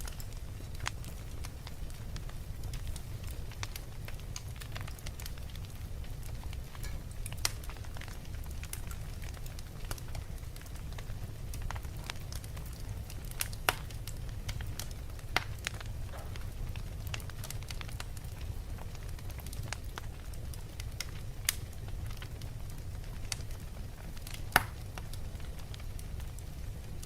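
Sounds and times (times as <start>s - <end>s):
fireplace fire crackling: 0.0s - 27.0s.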